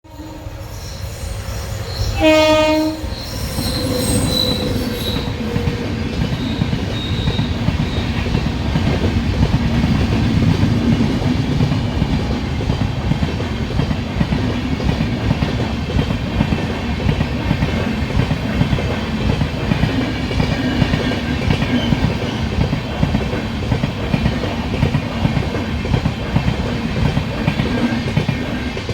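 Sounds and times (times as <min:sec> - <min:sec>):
train horn blast: 0:02.1 - 0:05.0
train wheels clattering on rails: 0:03.0 - 0:28.9.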